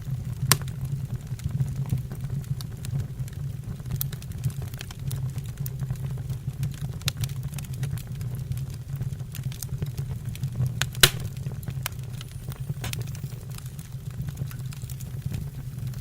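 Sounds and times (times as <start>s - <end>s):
wood fire crackling: 0.0s - 16.0s
loud snap of burning wood: 0.4s - 0.8s, 9.3s - 16.0s.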